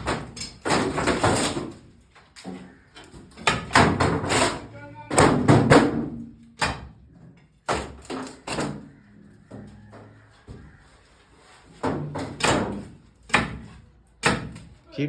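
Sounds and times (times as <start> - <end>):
roof demolition bangs and knocks: 0.0 - 1.9, 3.2 - 7.0.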